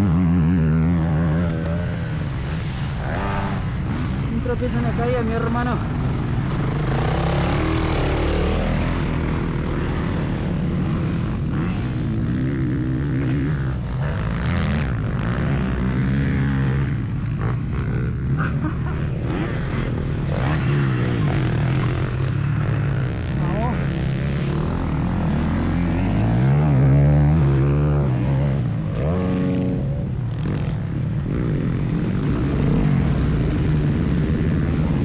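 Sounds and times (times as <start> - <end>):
motocross bike engine revving: 0.0 - 35.0.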